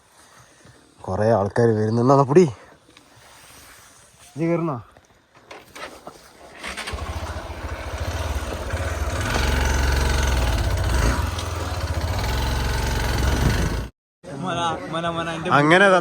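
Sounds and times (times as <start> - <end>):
vehicle engine under load: 6.6 - 13.9.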